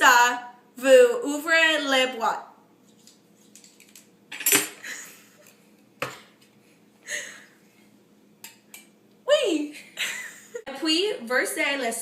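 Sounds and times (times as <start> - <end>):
kitchen utensils clattering: 3.7 - 5.0.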